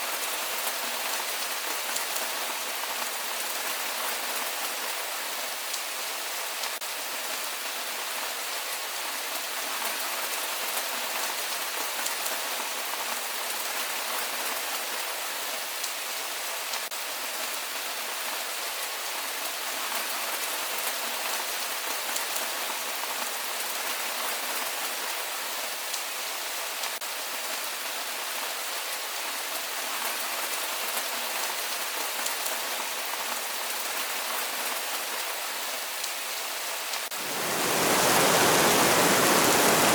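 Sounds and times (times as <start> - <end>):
heavy rain falling: 35.9 - 39.9.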